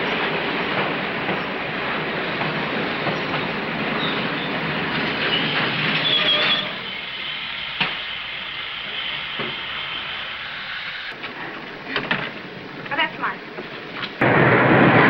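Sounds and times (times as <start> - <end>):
train car noise: 0.0 - 15.0
steady hiss: 6.7 - 11.2.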